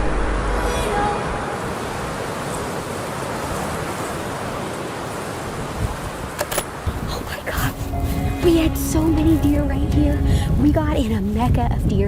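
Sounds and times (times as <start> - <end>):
wind blowing across microphone: 0.0 - 12.0.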